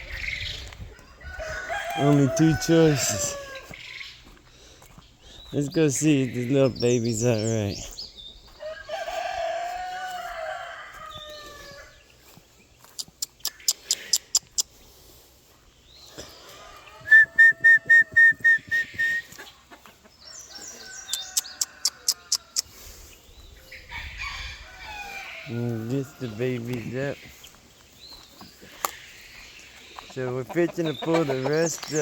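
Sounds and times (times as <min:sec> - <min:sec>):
rooster crowing: 0:01.1 - 0:03.8, 0:08.6 - 0:12.0, 0:16.5 - 0:17.8, 0:23.9 - 0:26.6
high-pitched bird calls: 0:12.8 - 0:14.7
sharp clicks: 0:13.0 - 0:14.7.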